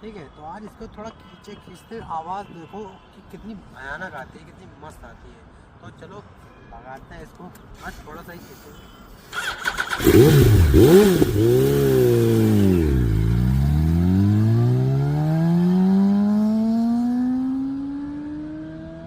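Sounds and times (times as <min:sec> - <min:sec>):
motorcycle engine revving and accelerating: 0:09.5 - 0:19.0.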